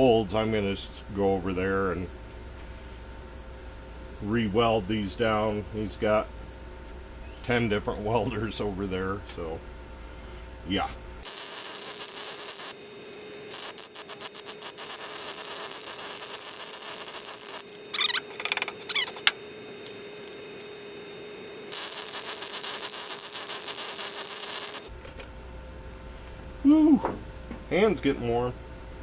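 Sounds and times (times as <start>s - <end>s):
high chirps: 11.2s - 24.9s
welder arc sizzling: 11.2s - 24.9s
sharp click: 18.0s - 20.0s.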